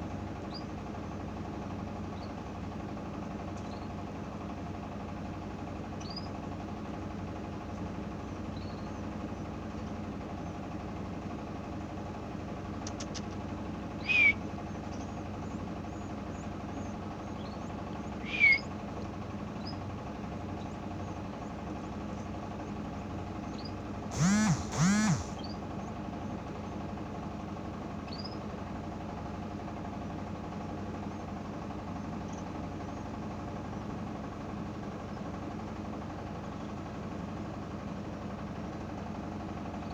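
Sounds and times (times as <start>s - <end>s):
bird chirps: 6.0s - 6.3s, 8.6s - 9.0s, 14.0s - 18.7s, 28.1s - 28.4s
machine hum: 6.5s - 38.1s
loud drawn-out bird calls: 12.7s - 26.8s.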